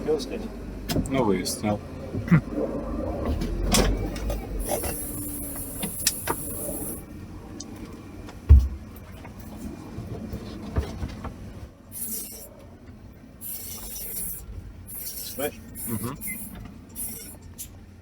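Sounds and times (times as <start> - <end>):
off-road vehicle over rough ground: 0.0 - 18.0
knocks and thumps: 8.4 - 8.9
high hiss: 13.4 - 17.4.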